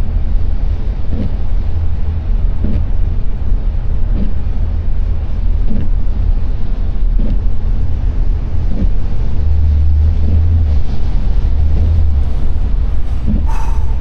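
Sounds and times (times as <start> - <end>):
car engine and tyres rumbling: 0.0 - 14.0.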